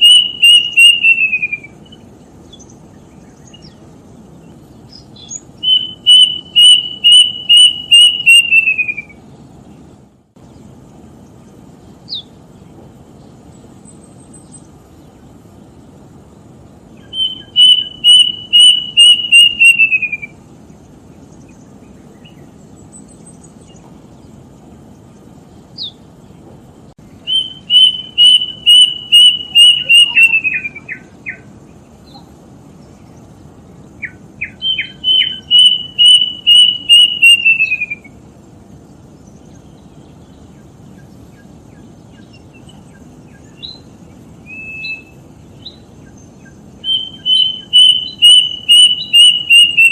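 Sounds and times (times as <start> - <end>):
bird whistling calls: 0.0 - 3.8, 4.9 - 9.2, 12.1 - 12.3, 17.0 - 20.4, 25.8 - 26.0, 27.2 - 32.3, 34.0 - 38.2, 39.2 - 49.9.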